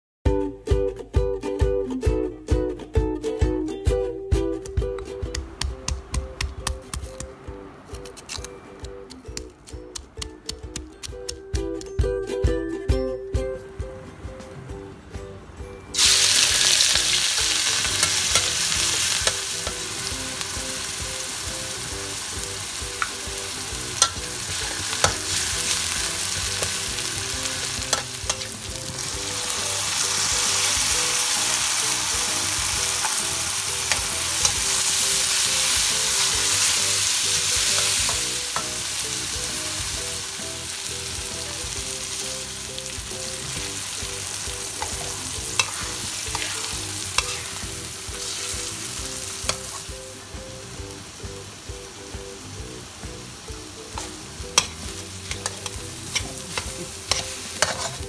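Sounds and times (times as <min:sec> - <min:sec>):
metal spatula scraping wok: 0:16.0 - 0:39.3, 0:44.6 - 0:49.9, 0:54.0 - 0:58.0
food sizzling in hot oil: 0:16.0 - 0:58.0.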